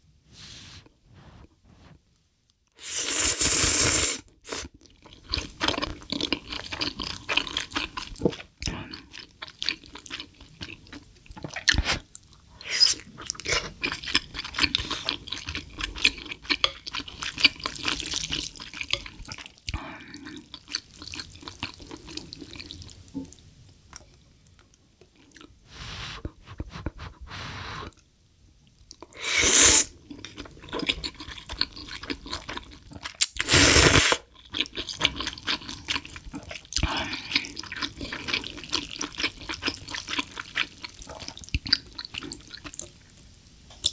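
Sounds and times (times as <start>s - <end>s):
loud noodle slurps: 2.8s - 4.7s, 29.2s - 29.9s, 33.4s - 34.2s
wet chewing: 34.4s - 43.0s.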